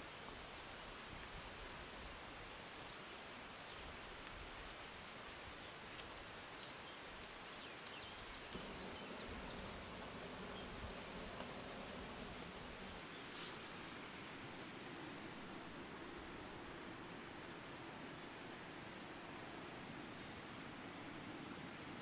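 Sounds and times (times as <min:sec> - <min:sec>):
forest background hiss: 0:00.0 - 0:22.0
bird singing trilled phrases: 0:07.6 - 0:13.5.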